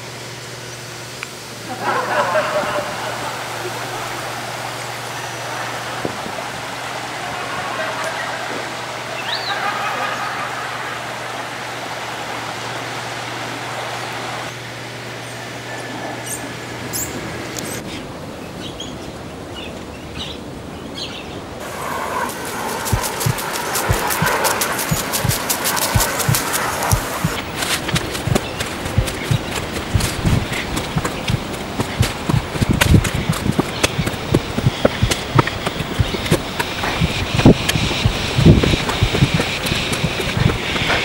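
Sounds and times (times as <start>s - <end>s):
rushing background noise: 0.0s - 41.0s
low hum: 21.6s - 41.0s.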